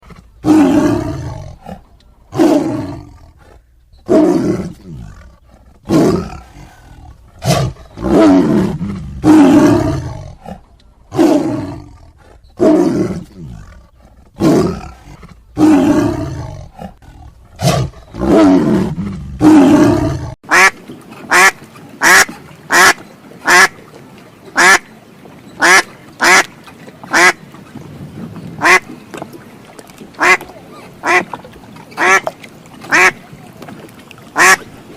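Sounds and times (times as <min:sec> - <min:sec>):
large animal roaring: 0:04.1 - 0:20.4
duck quacking: 0:20.5 - 0:20.7, 0:21.3 - 0:23.7, 0:24.6 - 0:24.8, 0:25.6 - 0:26.5, 0:27.1 - 0:27.4, 0:28.6 - 0:28.8, 0:30.2 - 0:30.4, 0:31.0 - 0:31.3, 0:32.0 - 0:32.2, 0:32.9 - 0:33.2, 0:34.4 - 0:34.6.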